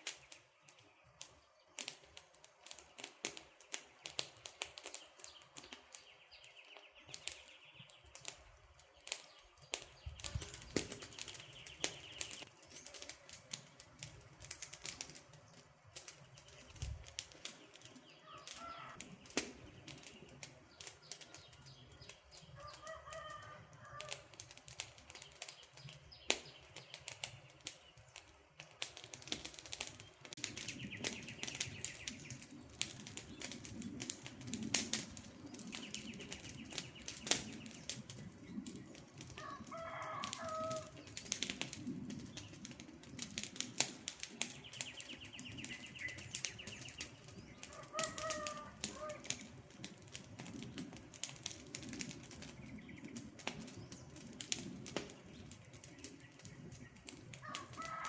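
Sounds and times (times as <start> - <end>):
campfire crackling: 0.0 - 58.0
bird calling: 18.0 - 19.0, 44.6 - 49.5.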